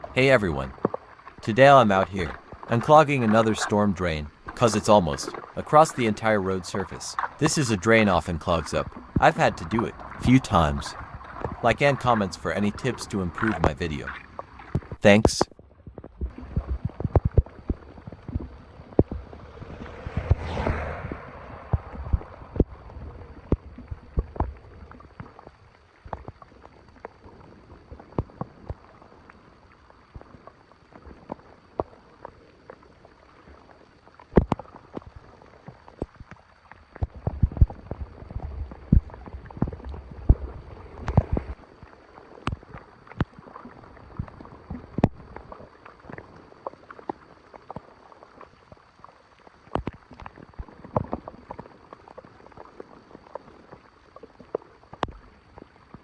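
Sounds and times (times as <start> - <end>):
water gurgling at a drain: 0.0 - 15.0
low rumble: 15.7 - 25.2, 37.1 - 41.8.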